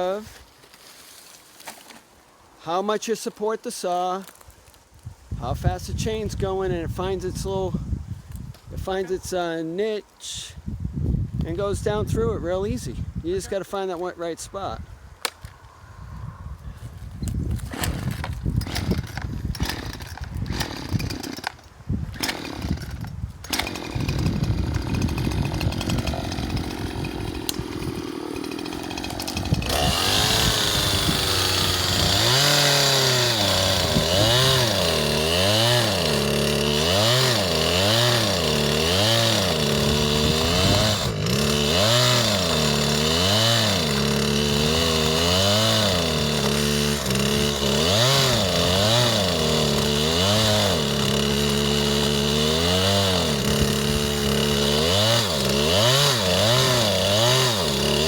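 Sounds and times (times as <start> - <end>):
chainsaw running and cutting: 17.6 - 58.0.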